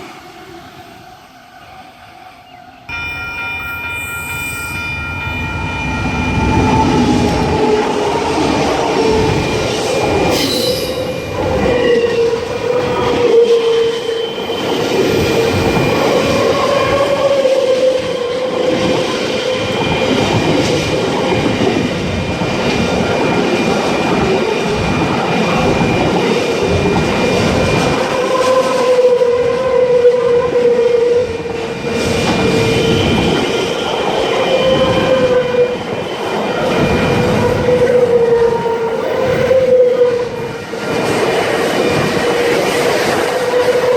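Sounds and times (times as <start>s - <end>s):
wavering whine: 2.9s - 20.2s.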